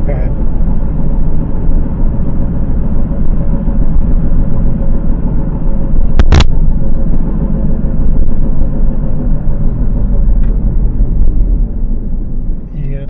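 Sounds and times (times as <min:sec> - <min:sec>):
car road rumble from inside: 0:00.0 - 0:13.0
faint wheel hum: 0:00.0 - 0:13.0.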